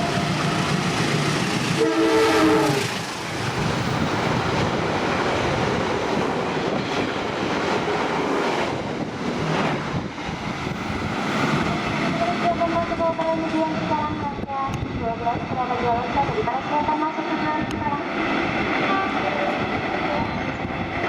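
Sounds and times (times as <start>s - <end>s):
train wheels on rails: 0.0s - 21.0s
train horn: 1.8s - 3.0s, 18.8s - 20.4s.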